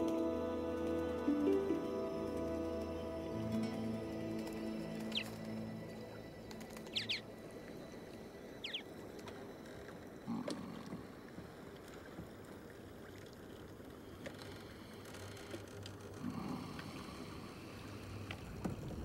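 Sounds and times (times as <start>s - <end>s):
sea and boat ambience: 0.0s - 19.0s
small bird chirping: 5.0s - 5.5s, 6.8s - 7.2s, 8.6s - 8.9s.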